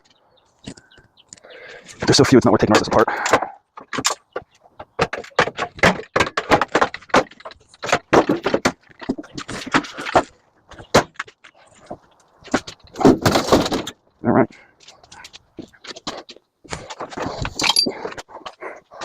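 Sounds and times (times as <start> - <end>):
metal clanks and rattles: 1.7 - 14.0, 14.8 - 19.0.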